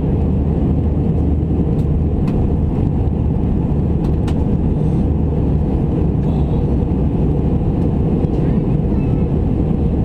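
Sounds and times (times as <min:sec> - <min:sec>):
jet cabin rumble: 0:00.0 - 0:10.0.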